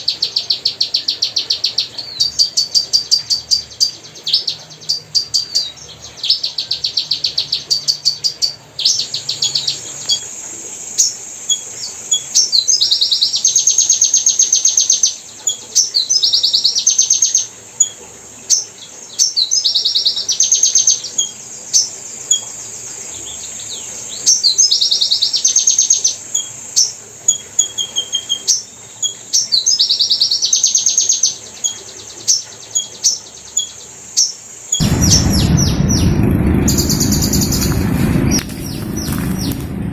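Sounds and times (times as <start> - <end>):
hummingbird chittering trills: 0.0 - 39.6.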